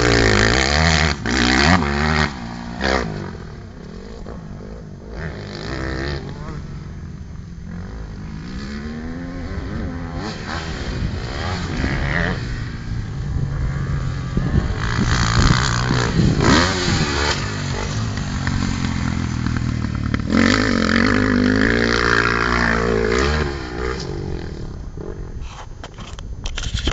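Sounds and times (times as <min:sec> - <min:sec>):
motocross bike engine revving: 0:00.0 - 0:25.5.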